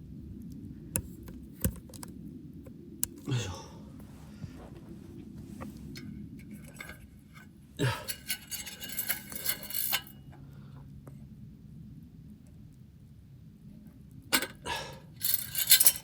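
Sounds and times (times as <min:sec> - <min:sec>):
steady low rumble: 0:00.0 - 0:07.8
metal and glass clinks: 0:08.0 - 0:10.1, 0:15.2 - 0:16.0.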